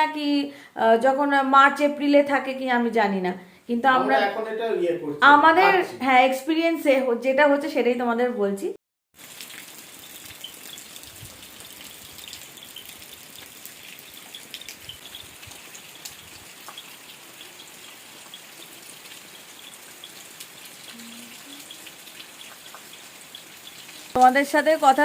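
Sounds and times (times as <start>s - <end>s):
faint drips: 9.2s - 25.0s
steady rain hiss: 9.2s - 25.0s.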